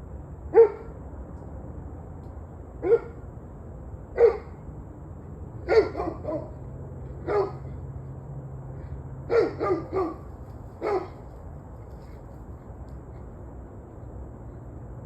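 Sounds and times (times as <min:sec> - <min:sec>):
dog barking: 0:00.5 - 0:00.9, 0:02.8 - 0:03.2, 0:04.2 - 0:04.6, 0:05.6 - 0:06.6, 0:07.2 - 0:07.8, 0:09.3 - 0:11.2.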